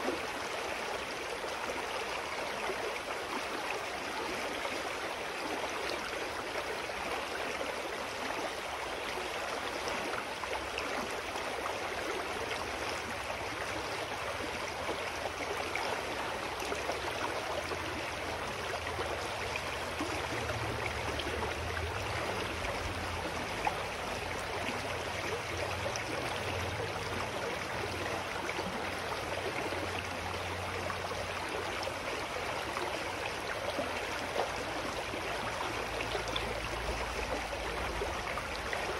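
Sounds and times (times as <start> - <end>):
stream flowing: 0.0 - 38.9.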